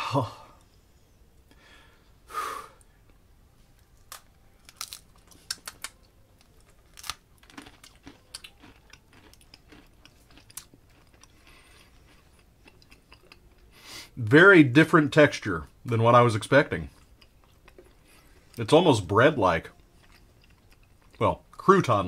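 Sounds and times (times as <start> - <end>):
crunching dry cracker: 3.9 - 13.6.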